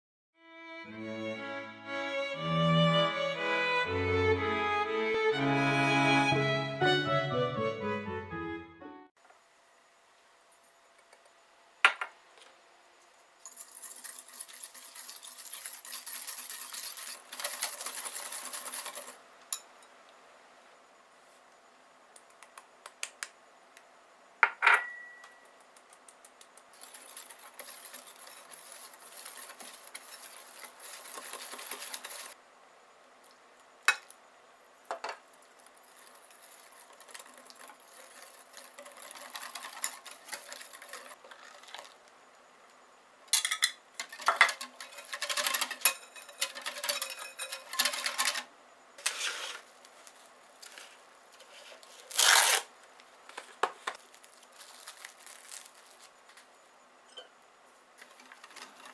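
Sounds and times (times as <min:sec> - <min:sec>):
scratchy stirring in a bowl: 0:13.4 - 0:19.2, 0:26.7 - 0:32.4, 0:35.6 - 0:42.0, 0:44.0 - 0:52.0
utensil clink: 0:24.4 - 0:25.5, 0:43.4 - 0:48.4.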